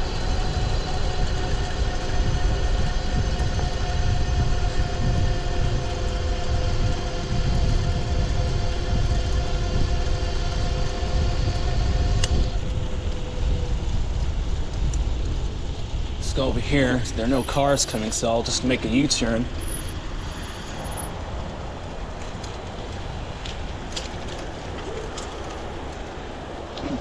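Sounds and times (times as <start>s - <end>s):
electric bike motor whining: 0.0s - 27.0s
wind rumble: 0.0s - 27.0s
tyre noise: 23.8s - 27.0s.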